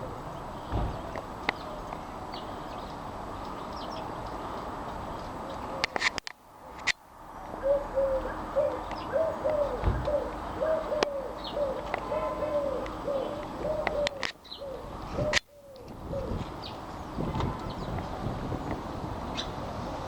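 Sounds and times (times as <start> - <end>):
small birds chirping: 0.0 - 6.0, 6.8 - 19.7
pigeon cooing: 7.6 - 16.5.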